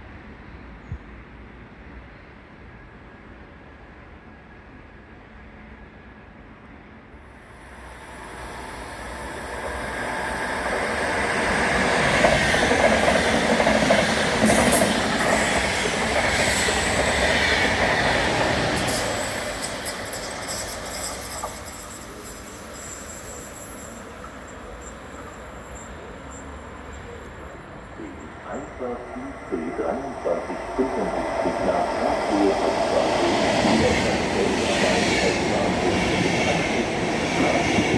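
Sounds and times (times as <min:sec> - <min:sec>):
train wheels rolling: 0:07.7 - 0:37.9.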